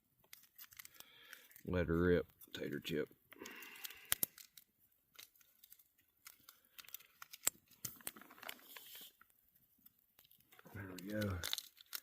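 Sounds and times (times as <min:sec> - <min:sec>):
packet rustling: 0:00.2 - 0:02.7, 0:03.3 - 0:12.0.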